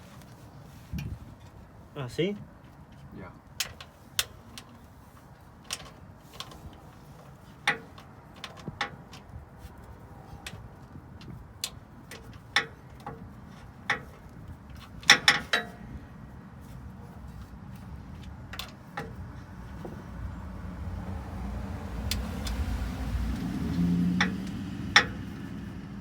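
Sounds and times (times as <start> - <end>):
low engine rumble: 0.0 - 26.0
sharp clicks and knocks: 10.4 - 15.8, 22.0 - 25.4.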